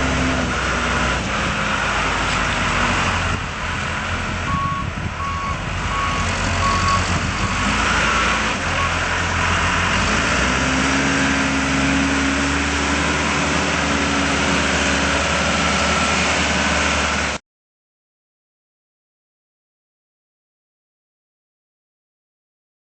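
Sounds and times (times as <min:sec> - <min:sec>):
diesel engine running and revving: 0:00.0 - 0:17.4
back-up alarm beeping: 0:04.5 - 0:07.6.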